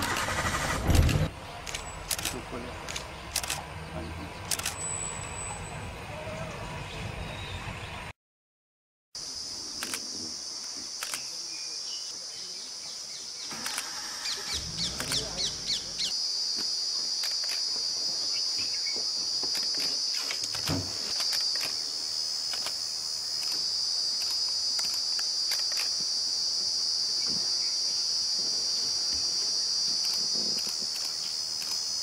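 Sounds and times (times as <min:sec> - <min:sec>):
high-pitched insect trill: 0:09.2 - 0:32.0.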